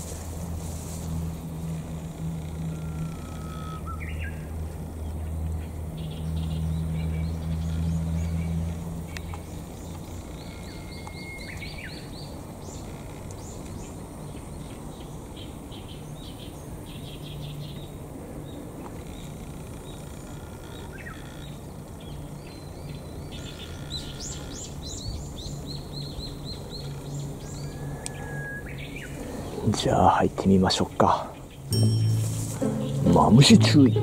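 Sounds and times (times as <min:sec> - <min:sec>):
steady low hum: 0:00.0 - 0:10.8, 0:31.5 - 0:34.0
birds chirping: 0:00.0 - 0:34.0.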